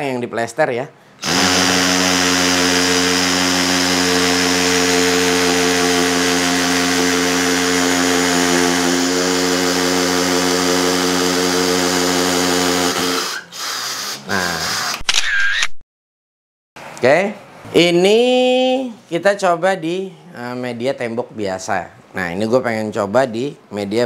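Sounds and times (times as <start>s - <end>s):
hammer drill boring into concrete: 1.2s - 15.7s.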